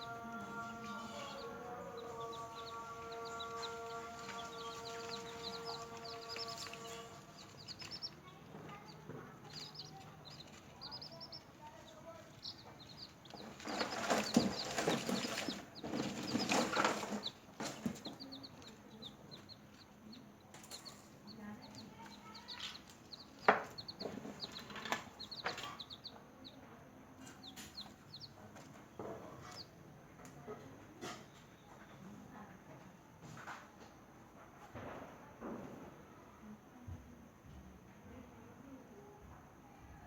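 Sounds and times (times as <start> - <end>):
chicks peeping: 0.0 - 29.8
rustling and scratching: 0.5 - 26.1.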